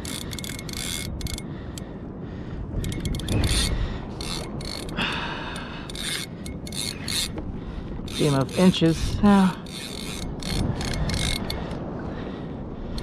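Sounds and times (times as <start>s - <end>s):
fishing reel clicking: 0.0s - 1.9s, 2.8s - 7.4s, 8.0s - 11.8s
low rumble of wind and water: 0.0s - 13.0s.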